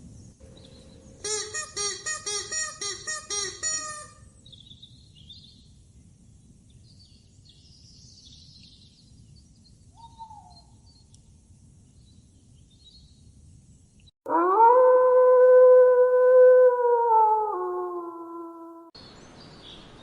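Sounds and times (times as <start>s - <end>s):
background hiss: 19.0s - 20.0s.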